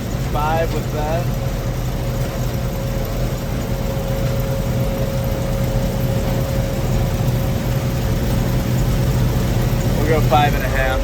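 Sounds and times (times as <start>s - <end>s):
combine engine humming: 0.0s - 11.0s
thin steady whine: 0.0s - 11.0s.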